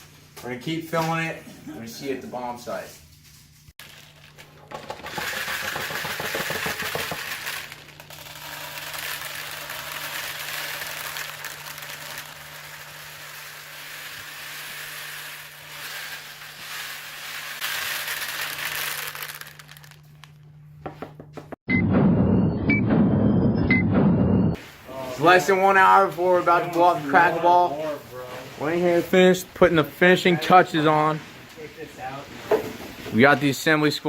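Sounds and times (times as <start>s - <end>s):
pellets rattling into plastic bottles: 3.8s - 20.3s
low electrical hum: 7.2s - 21.2s.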